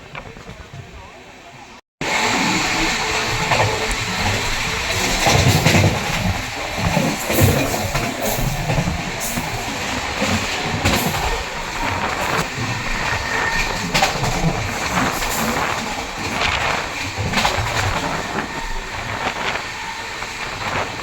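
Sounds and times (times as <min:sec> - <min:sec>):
train coach rumbling and rattling: 0:00.0 - 0:21.0
wheels clicking on track: 0:02.0 - 0:21.0.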